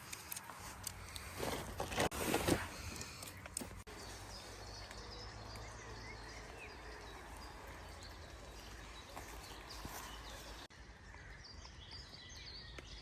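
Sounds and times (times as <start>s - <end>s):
rustle: 0.0s - 5.8s.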